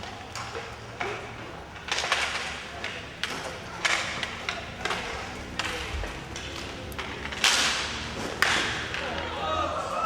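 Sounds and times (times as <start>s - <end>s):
puck hitting boards: 0.0s - 9.4s
sticks striking puck: 6.4s - 9.3s.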